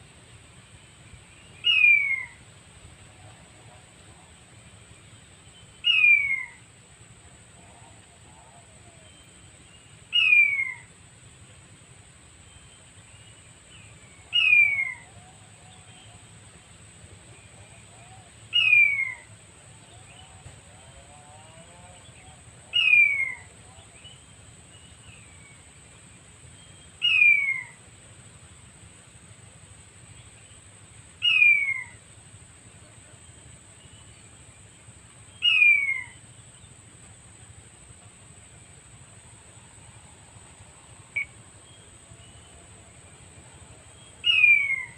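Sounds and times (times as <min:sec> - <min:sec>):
quail call whistle: 0:01.6 - 0:02.4, 0:05.8 - 0:06.6, 0:10.1 - 0:10.9, 0:14.3 - 0:15.3, 0:18.5 - 0:19.3, 0:22.7 - 0:23.5, 0:27.0 - 0:27.8, 0:31.2 - 0:32.0, 0:35.4 - 0:36.2, 0:44.2 - 0:44.9.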